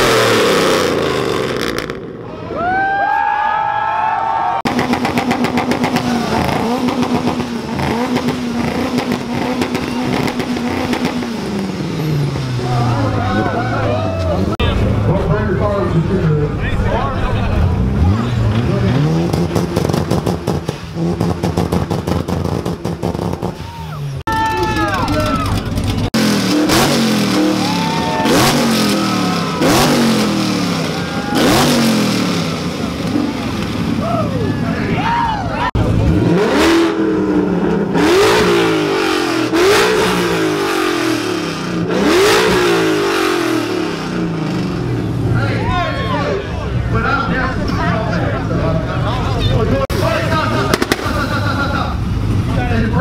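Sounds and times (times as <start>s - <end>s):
car engine revving: 0.0s - 2.4s, 4.6s - 34.5s, 35.6s - 53.0s
exhaust crackle: 4.6s - 15.9s, 16.6s - 34.8s, 48.4s - 53.0s.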